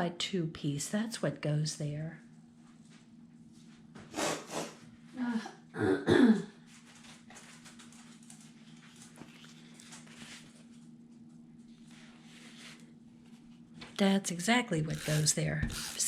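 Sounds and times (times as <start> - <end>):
paper rustling: 6.8 - 10.8.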